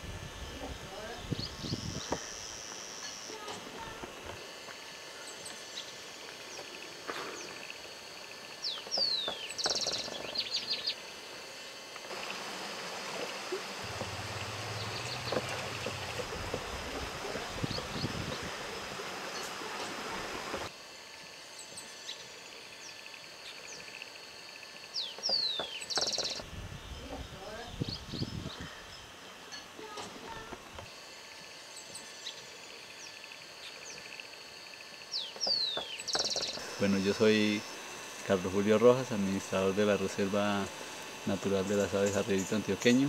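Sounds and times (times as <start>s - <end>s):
steady background hiss: 0.0s - 43.0s
birds calling: 5.1s - 11.1s, 12.1s - 20.7s, 24.9s - 30.6s, 35.0s - 43.0s
bird trilling: 8.6s - 11.0s, 13.9s - 19.6s, 25.0s - 26.4s, 35.1s - 37.1s.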